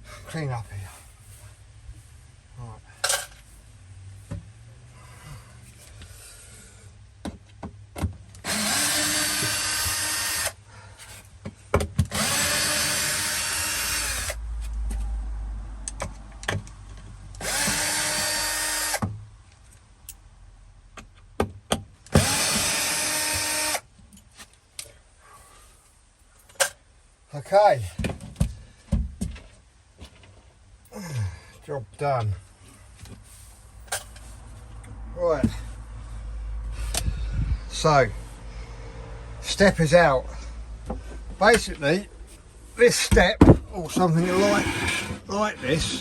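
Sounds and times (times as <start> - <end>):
power drill running: 8.4 - 10.6, 12.1 - 14.4, 17.4 - 19.0, 22.1 - 23.8.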